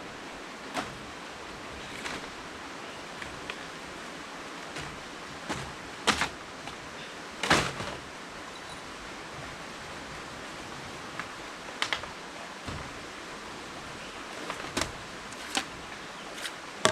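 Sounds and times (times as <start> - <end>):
steady background hiss: 0.0 - 16.9
sharp knocks: 4.7 - 6.8.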